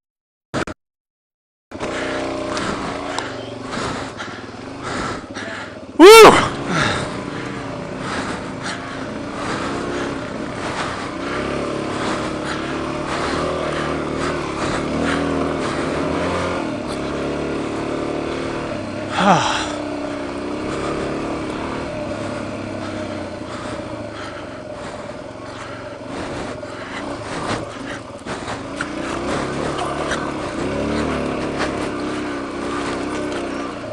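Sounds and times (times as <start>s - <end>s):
motorcycle engine revving: 1.7s - 33.9s.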